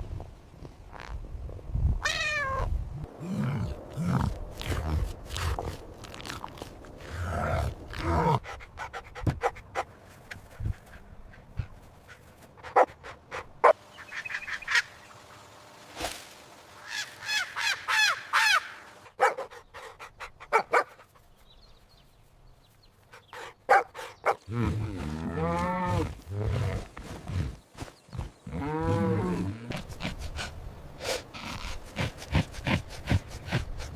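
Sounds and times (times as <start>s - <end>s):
recorded dog barks: 19.2s - 19.5s, 23.7s - 24.4s.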